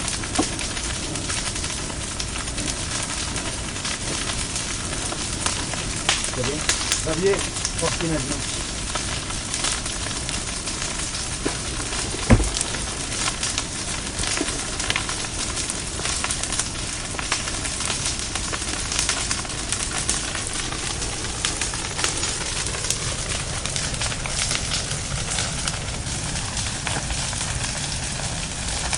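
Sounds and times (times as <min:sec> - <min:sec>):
bonfire crackling and hissing: 0:00.0 - 0:28.9
loud low thump: 0:11.4 - 0:13.0.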